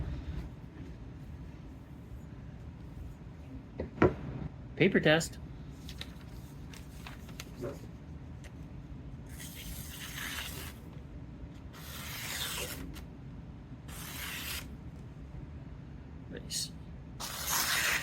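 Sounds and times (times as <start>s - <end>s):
knife slicing paper: 9.3s - 10.8s, 11.8s - 13.0s, 13.9s - 14.7s, 17.2s - 18.0s.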